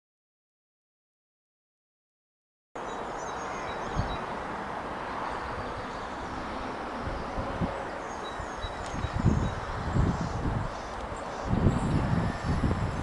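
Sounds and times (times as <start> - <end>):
small birds chirping: 2.8 - 4.5, 5.1 - 12.7
steady rushing hiss: 2.8 - 13.0
wind thumps on microphone: 8.7 - 13.0.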